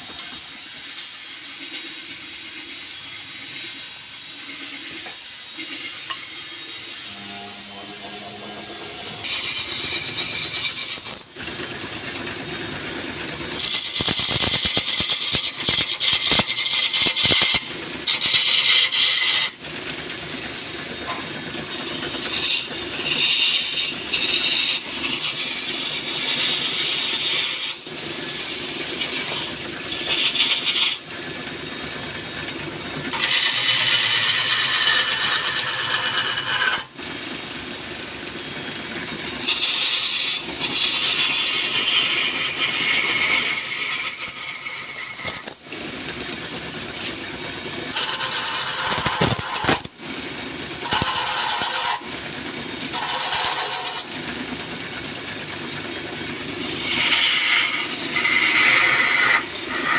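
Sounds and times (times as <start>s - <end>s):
wood lathe turning: 0.0s - 59.9s
chisel squealing on spinning wood: 1.3s - 37.2s, 38.2s - 45.9s, 47.7s - 50.1s, 50.8s - 52.2s, 52.9s - 54.2s, 55.8s - 59.9s.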